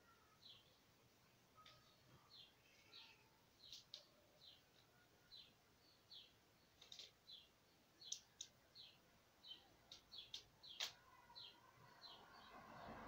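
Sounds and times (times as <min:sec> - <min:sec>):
small bird chirping: 0:00.0 - 0:13.0
sharp clicks: 0:09.9 - 0:11.0.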